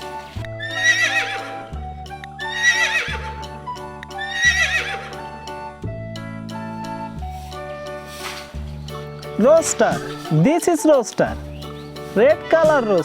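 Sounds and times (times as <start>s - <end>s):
horse whinnying: 0.6s - 1.6s, 2.4s - 3.4s, 4.2s - 5.2s, 9.4s - 10.6s.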